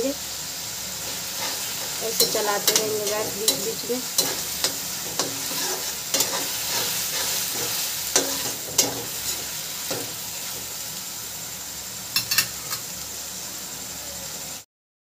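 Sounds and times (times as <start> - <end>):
masala sizzling in oil: 0.0 - 14.7
metal spatula scraping pan: 1.0 - 10.7
spatula clinking on pan: 1.4 - 10.2, 12.2 - 12.9.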